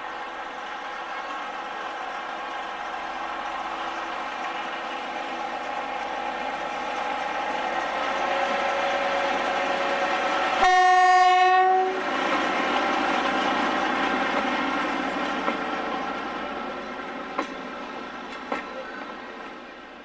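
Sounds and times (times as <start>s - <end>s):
locomotive engine running: 0.0s - 10.6s
train horn blast: 8.2s - 12.1s.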